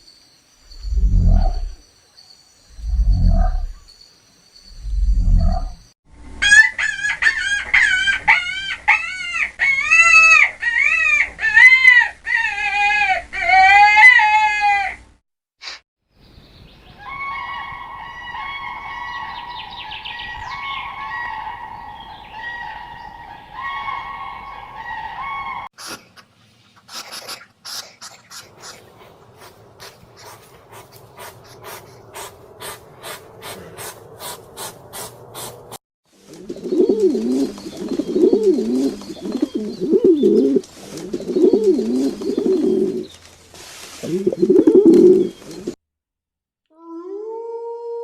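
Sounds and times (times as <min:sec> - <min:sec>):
long high wavering animal call: 0:00.8 - 0:01.8
deep animal grunts: 0:33.0 - 0:34.0.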